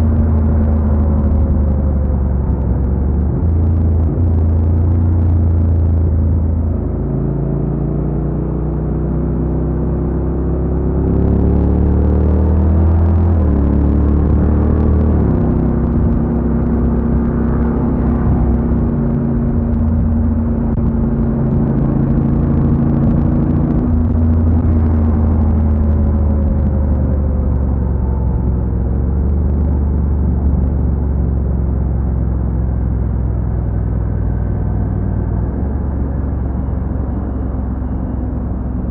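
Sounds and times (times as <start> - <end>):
road noise: 0.0 - 38.9
motorcycle engine running: 12.8 - 38.9.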